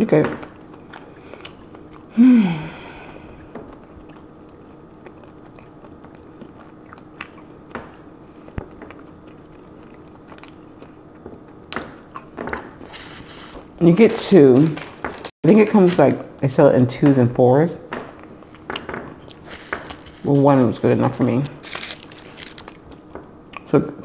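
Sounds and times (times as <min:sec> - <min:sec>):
chewing and crunching: 0:00.1 - 0:02.2, 0:03.0 - 0:15.3, 0:18.1 - 0:23.8
person humming: 0:02.1 - 0:03.3.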